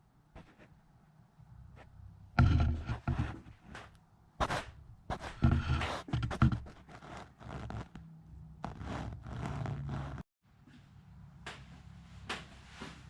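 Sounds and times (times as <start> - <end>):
thumps knocks and scrapes: 1.8 - 8.0.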